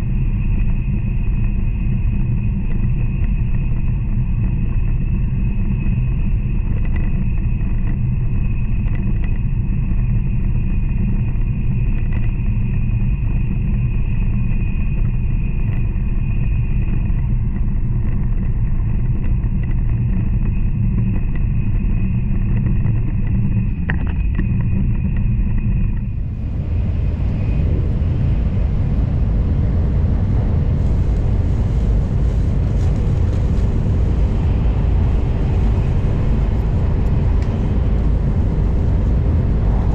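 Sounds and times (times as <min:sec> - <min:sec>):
train running at speed: 0:26.0 - 0:39.9.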